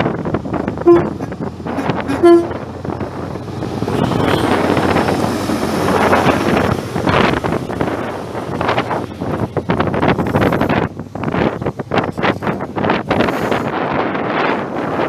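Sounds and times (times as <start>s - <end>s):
broad rushing noise: 0.0s - 15.0s
train horn toots: 0.8s - 2.7s, 3.9s - 4.8s.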